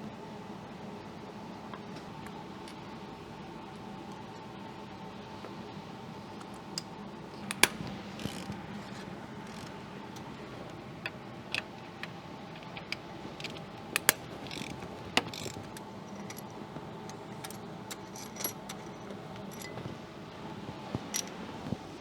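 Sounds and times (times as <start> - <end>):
steady low hum: 0.0 - 22.0
metal tools clicking and clinking: 6.4 - 21.7.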